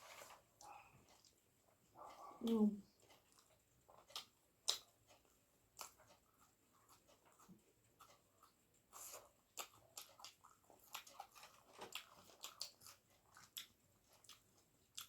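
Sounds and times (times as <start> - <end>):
chewing with wet mouth smacks: 3.0 - 15.0.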